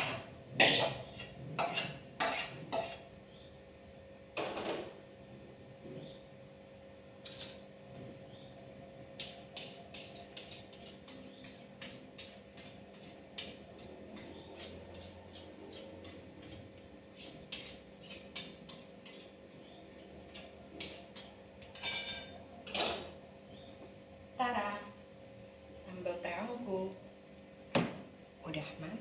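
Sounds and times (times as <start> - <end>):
faint steady hum: 0.0 - 29.0
utensils clinking against cookware: 21.7 - 23.0.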